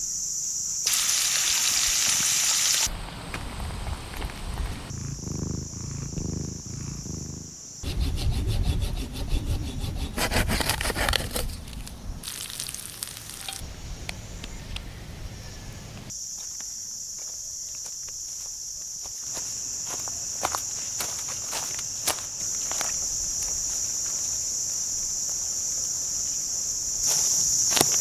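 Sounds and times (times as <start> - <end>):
rhythmic scraping of wood: 7.8 - 12.0.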